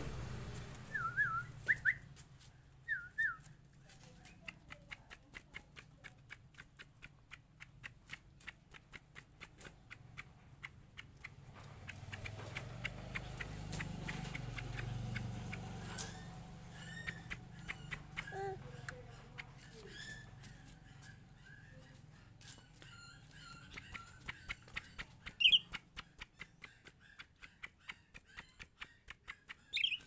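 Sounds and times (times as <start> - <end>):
sharp regular clicks: 4.3 - 18.5.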